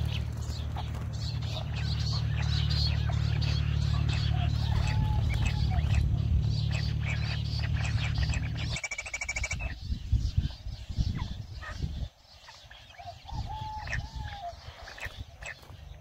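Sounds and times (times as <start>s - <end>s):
low rumble: 0.0s - 12.1s
bird trill: 0.0s - 16.0s
small birds chirping: 0.0s - 16.0s.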